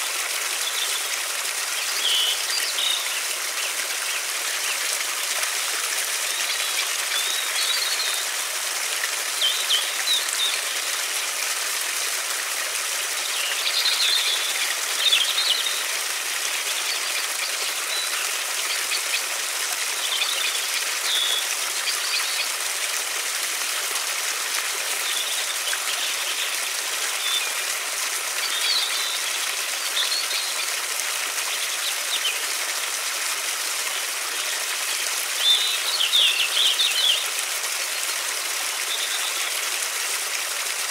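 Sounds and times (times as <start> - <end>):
river water rushing: 0.0 - 40.9
small birds chirping: 13.1 - 19.3, 28.4 - 30.8, 35.4 - 37.3, 38.8 - 39.6.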